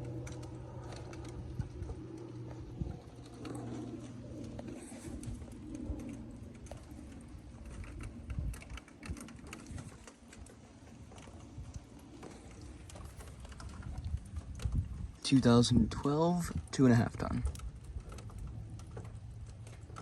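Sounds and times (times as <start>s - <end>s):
dove cooing: 0.0s - 7.4s
low steady hum: 0.0s - 20.0s.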